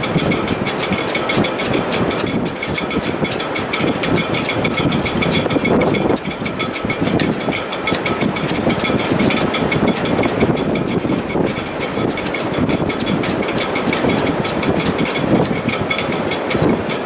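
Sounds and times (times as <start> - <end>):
rigging rattling: 0.0 - 17.0
strong wind rushing: 0.0 - 17.0.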